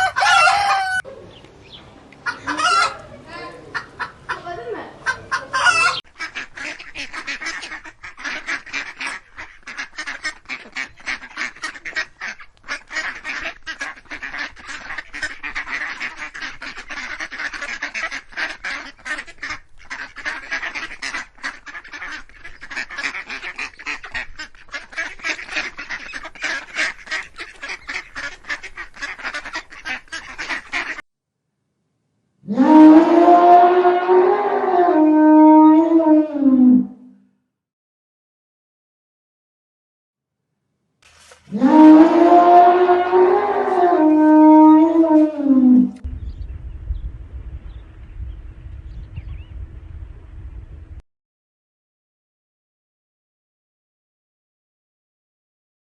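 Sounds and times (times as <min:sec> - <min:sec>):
flock of birds calling: 0:00.0 - 0:31.0.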